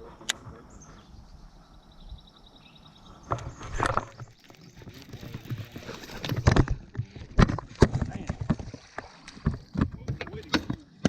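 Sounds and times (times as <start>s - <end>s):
fishing gear knocking and rattling: 3.7s - 11.0s.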